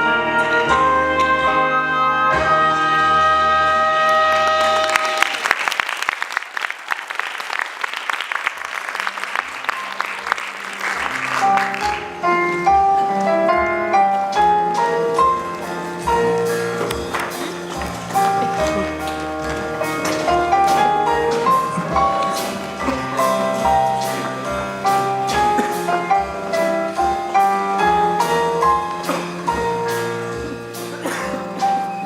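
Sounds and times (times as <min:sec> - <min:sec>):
jazzy band music: 0:00.0 - 0:05.4, 0:09.0 - 0:32.0
audience applauding: 0:03.6 - 0:12.3, 0:16.3 - 0:24.5.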